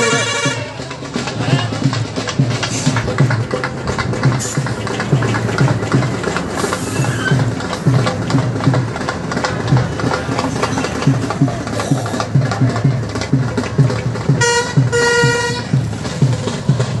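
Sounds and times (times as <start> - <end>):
vehicle horn honking: 0.0 - 0.8, 14.4 - 15.7
low thudding beat: 0.0 - 17.0.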